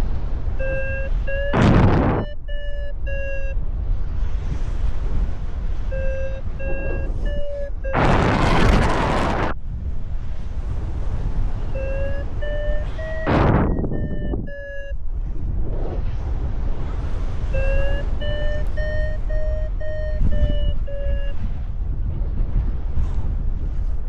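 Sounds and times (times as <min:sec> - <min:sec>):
wind buffeting microphone: 0:00.0 - 0:02.6, 0:03.6 - 0:24.0
variometer beeping: 0:00.5 - 0:03.6, 0:05.8 - 0:09.5, 0:11.7 - 0:15.1, 0:17.4 - 0:21.6.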